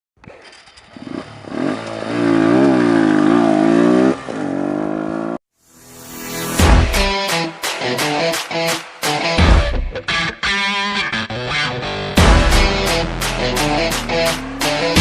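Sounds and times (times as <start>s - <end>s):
motorcycle engine revving: 0.2s - 5.4s, 12.2s - 15.0s.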